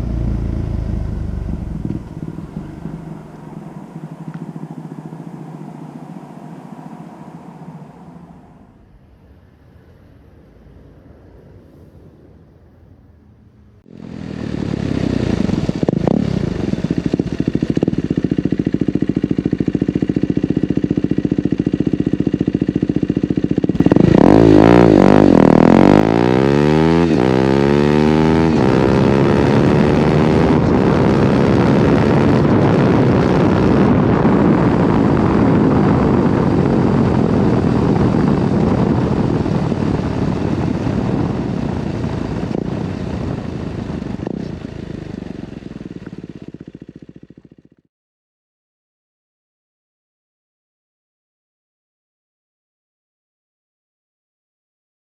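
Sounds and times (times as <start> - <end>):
motorcycle engine revving: 0.0 - 8.8, 13.8 - 47.9.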